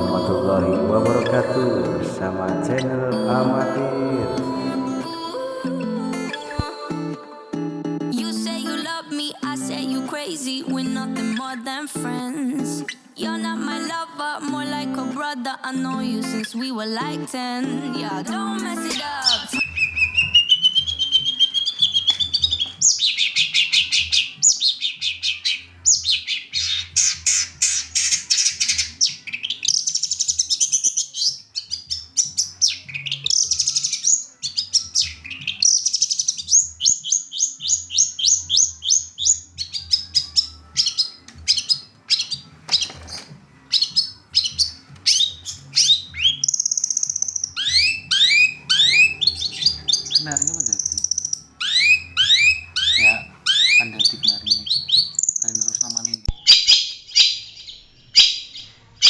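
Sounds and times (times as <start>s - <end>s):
bird singing chattering trills: 18.4s - 42.9s, 43.7s - 58.7s.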